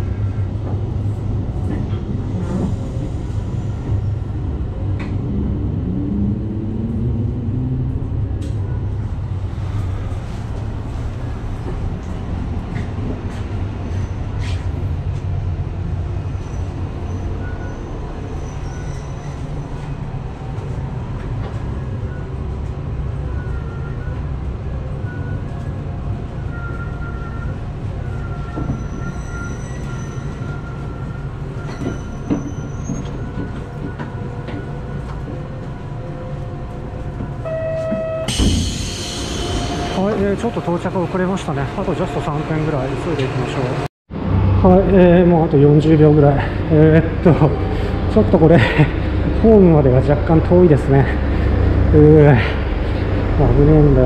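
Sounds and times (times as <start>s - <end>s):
train engine and wheels rumbling: 0.0s - 54.0s
high brake squeal: 16.4s - 19.6s, 26.4s - 33.4s, 37.4s - 40.8s
short tone: 37.4s - 40.0s.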